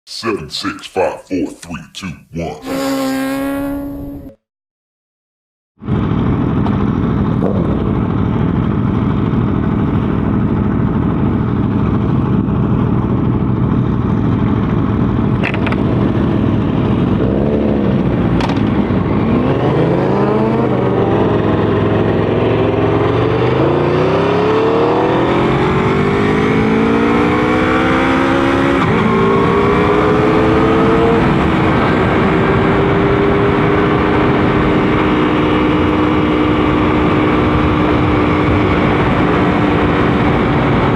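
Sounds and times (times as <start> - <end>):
motorcycle engine accelerating: 2.6 - 4.4, 5.8 - 40.9
wind noise: 25.0 - 40.9.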